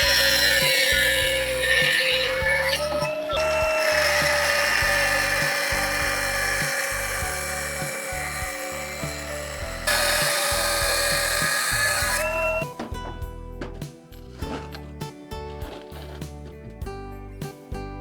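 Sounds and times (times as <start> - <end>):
power tool whining: 0.0 - 13.0
background music: 0.0 - 18.0.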